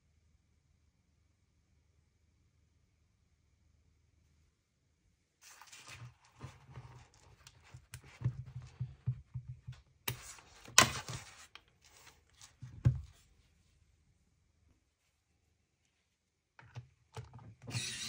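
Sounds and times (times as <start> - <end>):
rustling on work surface: 5.4 - 9.0, 10.1 - 13.8.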